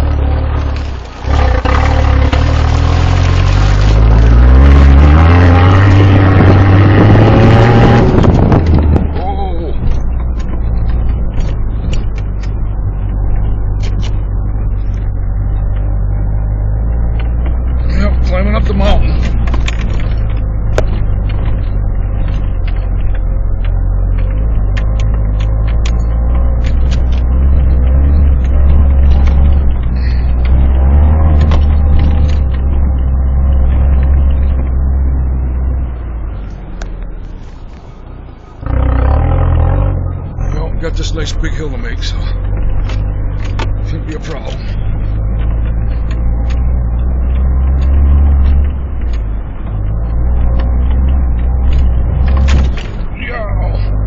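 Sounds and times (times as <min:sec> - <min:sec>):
vehicle engine drone from inside: 0:00.0 - 0:54.0
vehicle knocks and rattles: 0:17.1 - 0:35.0, 0:41.0 - 0:53.2.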